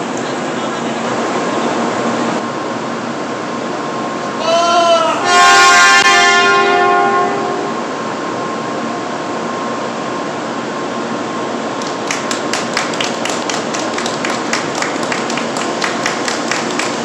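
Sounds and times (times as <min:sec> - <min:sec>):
train rushing noise: 0:11.6 - 0:17.0
people clapping: 0:11.8 - 0:17.0.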